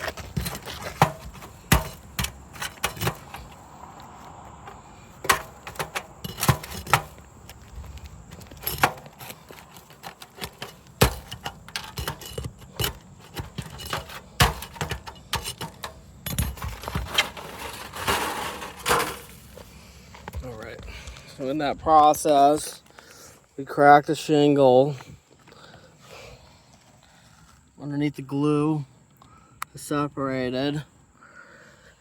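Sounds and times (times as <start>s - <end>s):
sharp clicks and knocks: 0.0s - 3.6s, 8.5s - 17.5s
scraping on roof: 8.4s - 19.5s.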